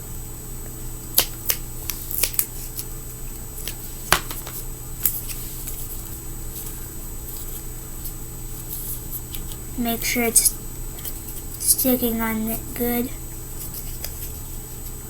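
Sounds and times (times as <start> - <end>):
grip tape clicking and crackling: 1.1 - 2.9, 13.6 - 15.0.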